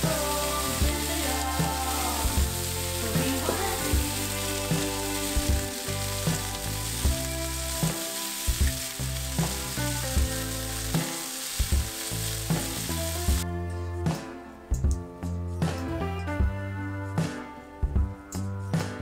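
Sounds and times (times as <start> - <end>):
chicken sizzling in frying pan: 0.0 - 13.4
background music with beat: 0.0 - 19.0.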